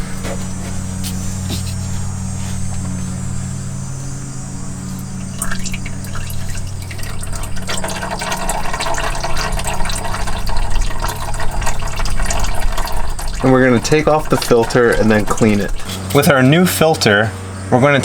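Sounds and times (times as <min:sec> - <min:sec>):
oil pouring into a drain pan: 0:05.1 - 0:16.2.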